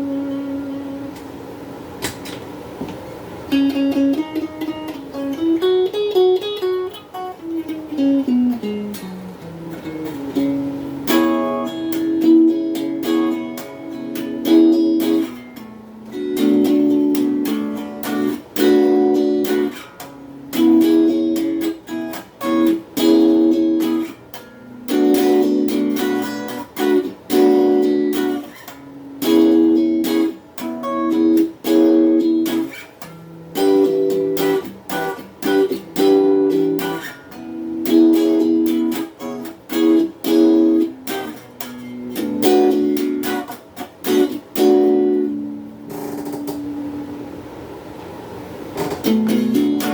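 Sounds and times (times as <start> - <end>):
electric guitar through small amp: 0.0 - 1.4, 3.4 - 47.2, 48.8 - 49.9.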